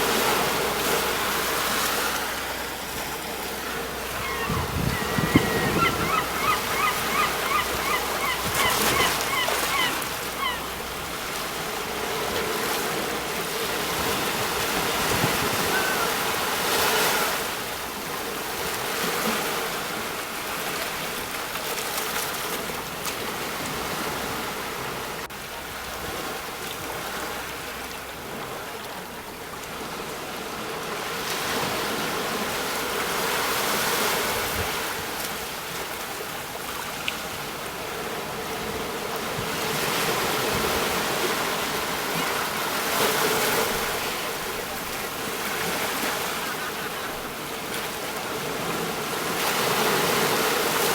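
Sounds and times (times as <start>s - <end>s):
sea waves breaking on shore: 0.0s - 50.9s
bird calling short notes: 4.1s - 10.6s.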